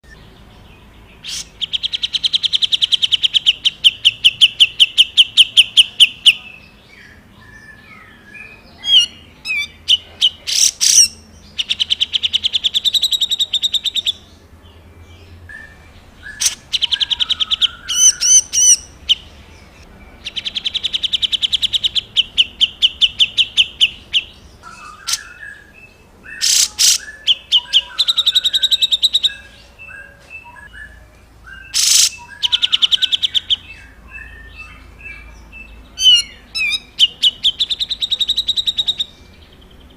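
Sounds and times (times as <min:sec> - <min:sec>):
songbird trilling: 0:00.1 - 0:14.4, 0:15.1 - 0:39.9
sharp whistled bird notes: 0:20.3 - 0:33.6.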